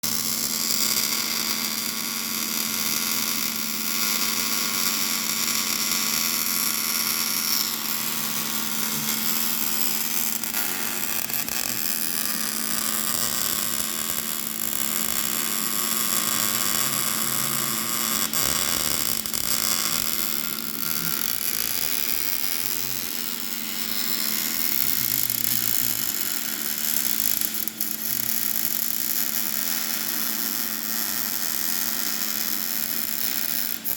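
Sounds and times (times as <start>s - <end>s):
welding arc crackling: 0.0s - 33.9s
electrical hum: 4.6s - 27.2s.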